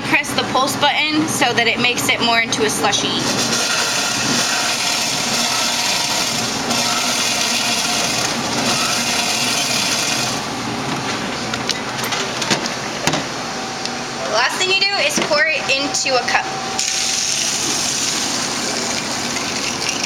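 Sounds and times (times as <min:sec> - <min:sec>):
blender crushing ice: 0:03.3 - 0:10.5, 0:16.8 - 0:20.0.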